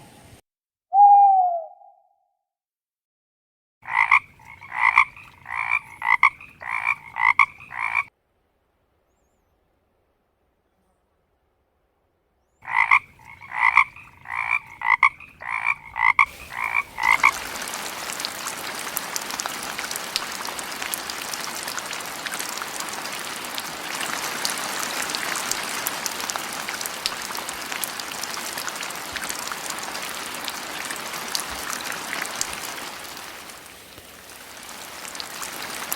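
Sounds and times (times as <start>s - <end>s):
frog croaking: 3.8s - 8.1s, 12.6s - 33.2s
water hiss with light patter: 12.7s - 35.9s.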